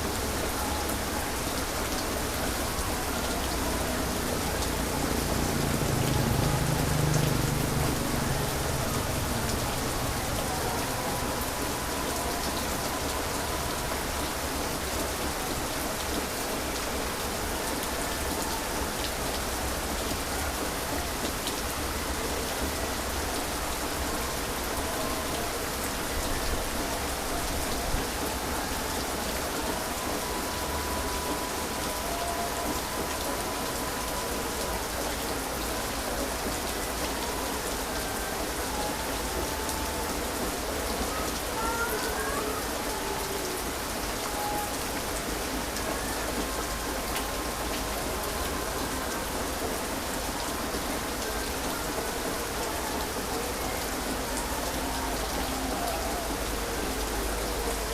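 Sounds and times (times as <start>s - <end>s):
heavy rain falling: 0.0s - 57.9s.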